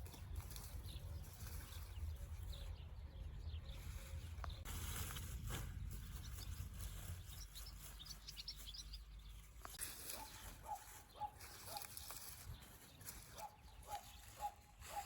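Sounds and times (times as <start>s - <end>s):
quick high bird chirps: 6.1s - 9.1s.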